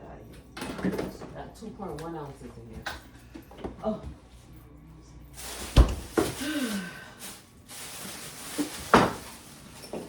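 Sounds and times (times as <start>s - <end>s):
kitchen knocks and thuds: 5.7s - 6.4s, 8.8s - 9.3s.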